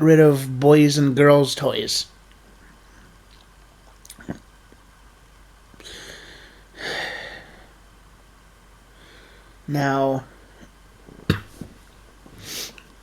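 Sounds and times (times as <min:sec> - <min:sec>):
man breathing: 0:05.8 - 0:07.8, 0:08.9 - 0:09.6, 0:12.3 - 0:12.8.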